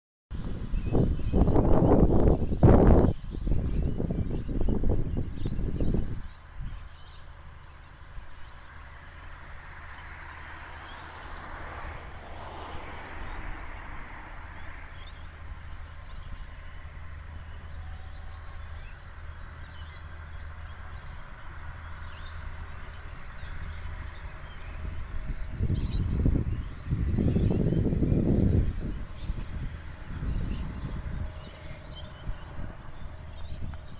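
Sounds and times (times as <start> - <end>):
low train hum: 0.4 - 33.9
birds chirping: 12.1 - 33.9
train wheel and rail noise: 28.6 - 33.9.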